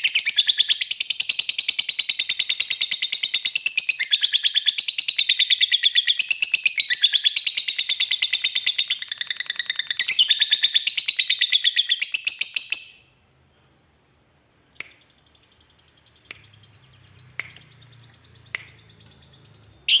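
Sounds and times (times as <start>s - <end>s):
lovebird chattering trill: 0.0s - 20.0s
short sharp bird chirps: 9.1s - 20.0s.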